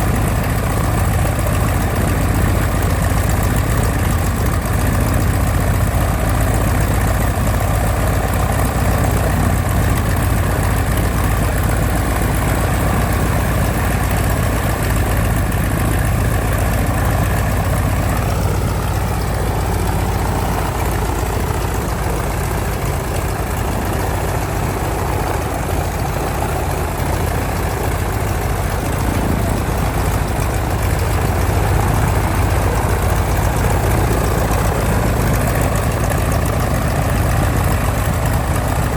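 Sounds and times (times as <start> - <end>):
airplane radial engine idling: 0.0 - 38.9.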